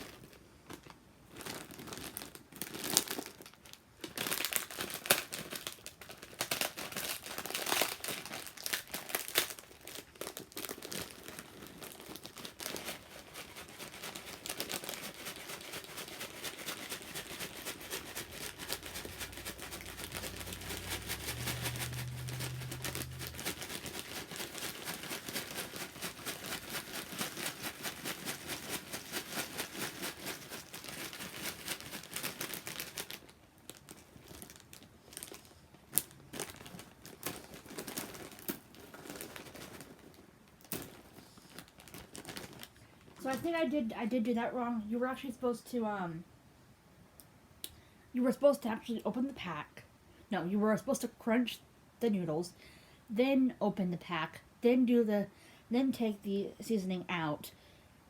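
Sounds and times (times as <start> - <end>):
plastic snack packet crinkling: 0.0 - 44.4
packet shaking rhythmically: 1.4 - 35.4, 36.3 - 40.1, 40.7 - 43.8.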